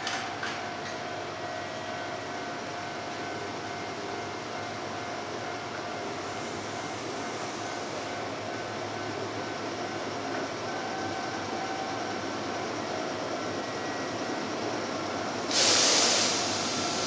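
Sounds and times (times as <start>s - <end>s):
train rolling rumble: 0.0s - 17.0s
sudden loud hiss: 15.5s - 17.0s.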